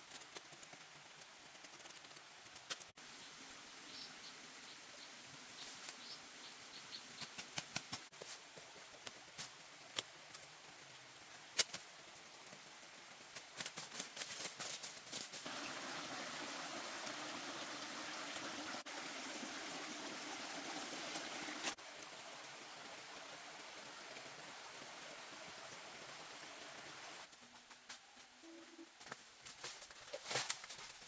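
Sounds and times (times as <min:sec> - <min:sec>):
quiet steady hiss: 0:02.2 - 0:19.7
running water: 0:15.4 - 0:27.3.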